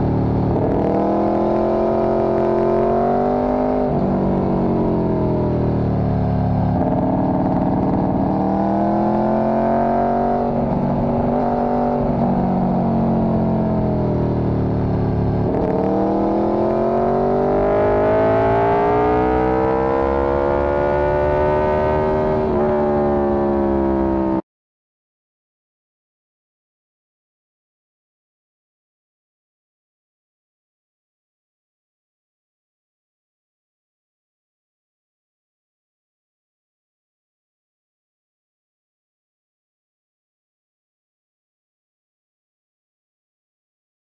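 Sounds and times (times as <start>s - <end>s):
motorcycle engine running: 0.0s - 24.4s.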